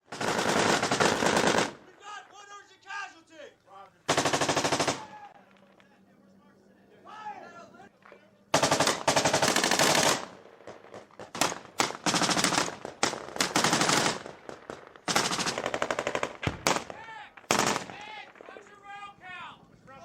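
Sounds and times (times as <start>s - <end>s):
automatic gunfire bursts: 0.1s - 2.2s, 4.1s - 5.2s, 8.5s - 18.6s.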